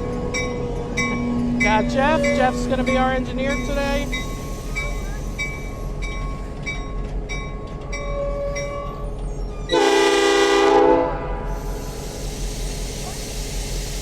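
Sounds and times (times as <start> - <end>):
locomotive bell ringing: 0.0 - 9.8
diesel locomotive idling: 0.0 - 14.0
locomotive air horn chord: 9.7 - 11.6.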